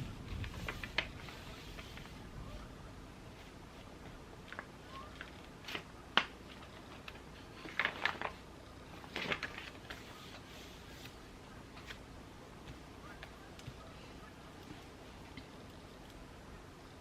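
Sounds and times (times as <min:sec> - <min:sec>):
rapid taps and rustles: 0:00.2 - 0:02.2, 0:09.0 - 0:16.2.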